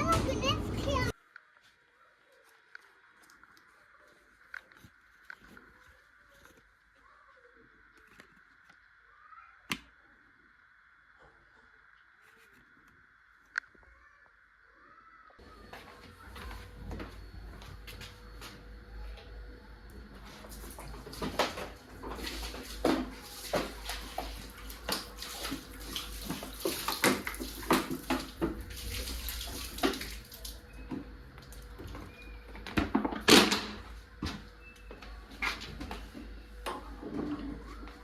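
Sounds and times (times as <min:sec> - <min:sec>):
water running and splashing: 0:20.4 - 0:30.8.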